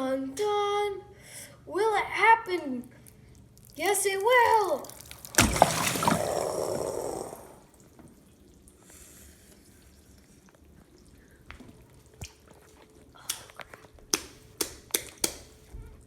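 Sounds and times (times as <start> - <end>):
water splashing and pouring: 4.5 - 7.8.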